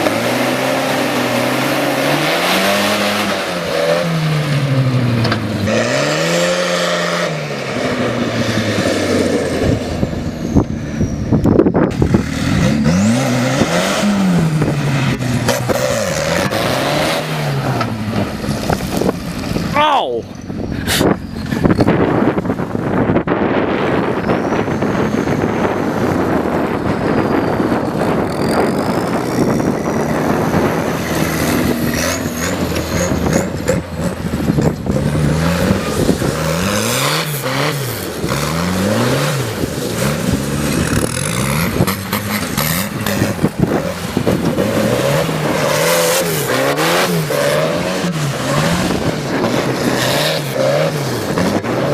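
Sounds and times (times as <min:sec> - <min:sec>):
engine revving: 0:00.0 - 0:19.8, 0:22.9 - 0:51.9.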